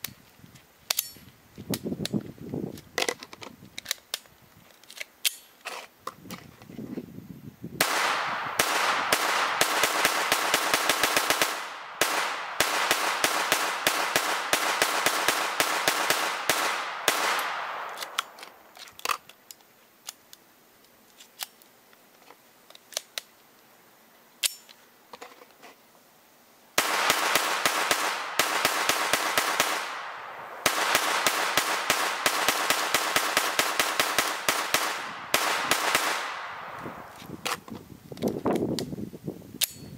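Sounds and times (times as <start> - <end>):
rifle clicks: 0.9 - 6.4, 7.8 - 21.7, 22.7 - 23.4
rifle firing rapid shots: 7.8 - 18.4, 26.8 - 37.1.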